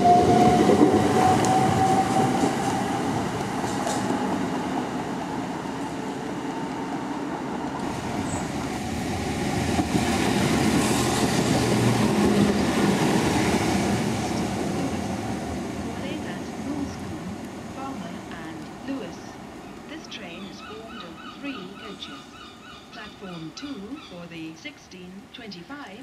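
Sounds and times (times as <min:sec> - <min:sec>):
train wheels rumbling on rails: 0:00.0 - 0:17.3
faint train whine: 0:00.0 - 0:26.0.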